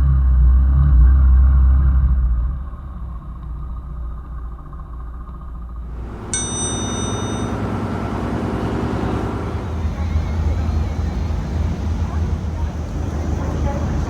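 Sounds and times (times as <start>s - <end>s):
bright bell-like ding: 6.0s - 9.8s.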